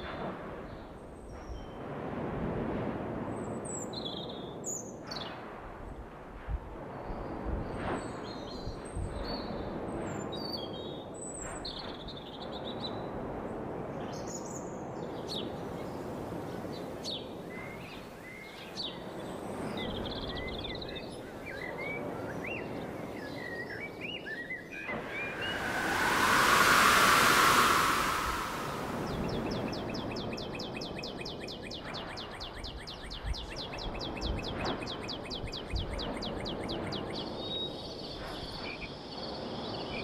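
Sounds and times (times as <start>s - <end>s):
rush of noise with ringing tone: 24.9s - 30.1s
steady background hiss: 25.0s - 29.9s.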